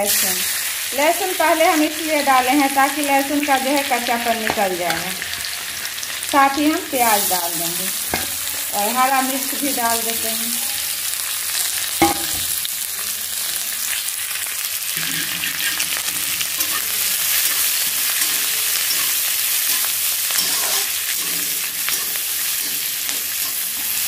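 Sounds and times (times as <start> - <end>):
onions sizzling in hot oil: 0.0 - 24.0
stirring and scraping pan: 14.9 - 24.0.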